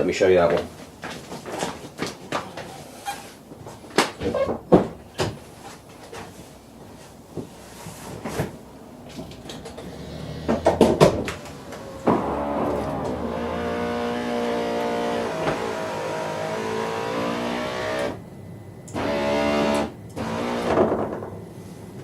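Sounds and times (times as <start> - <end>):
electric motor whine: 9.8 - 18.2, 18.9 - 21.0.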